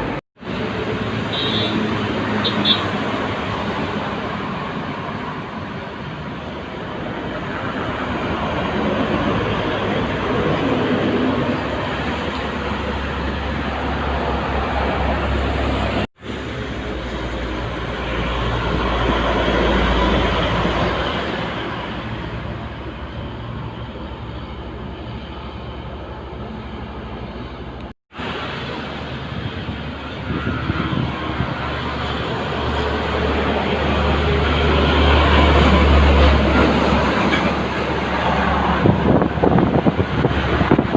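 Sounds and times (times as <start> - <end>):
heavy trucks passing on highway: 0.0 - 40.9.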